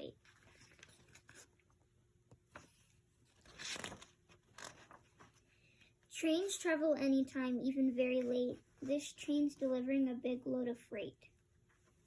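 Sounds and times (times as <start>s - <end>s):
page turning: 0.2s - 1.6s, 2.3s - 5.4s.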